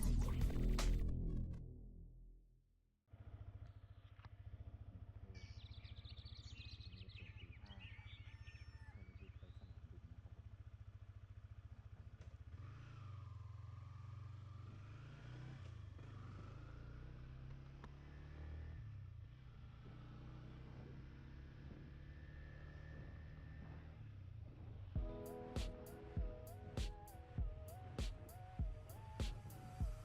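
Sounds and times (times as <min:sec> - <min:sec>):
motorcycle engine idling: 0:03.1 - 0:18.1, 0:23.1 - 0:30.0.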